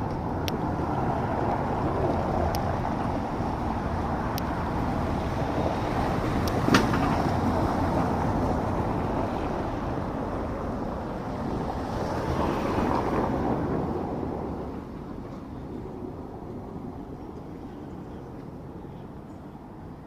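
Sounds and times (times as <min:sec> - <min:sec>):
wind noise: 0:00.0 - 0:20.0.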